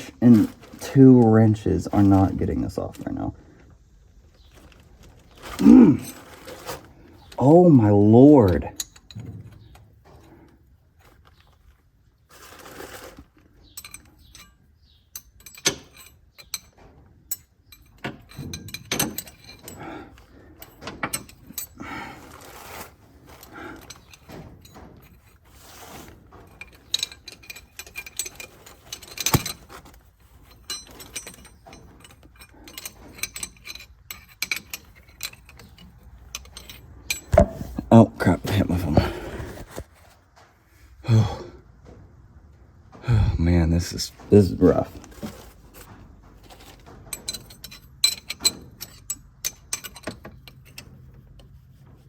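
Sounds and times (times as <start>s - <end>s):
wrenches clinking on metal fitting: 0.0s - 3.4s, 4.5s - 10.5s, 12.7s - 39.2s, 43.8s - 52.0s.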